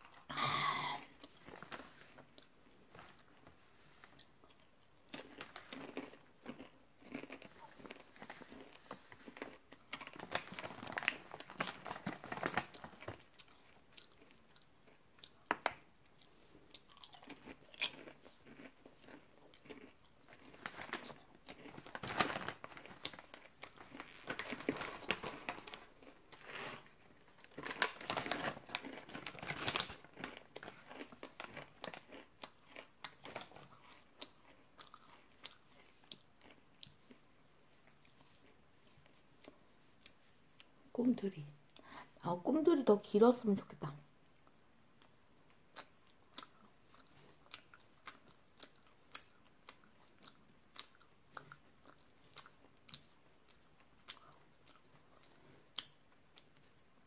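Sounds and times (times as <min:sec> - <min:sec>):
chewing crunchy popcorn: 0:00.0 - 0:40.9, 0:44.2 - 0:57.0
foil snack bag crinkling: 0:05.1 - 0:14.3, 0:17.0 - 0:36.6.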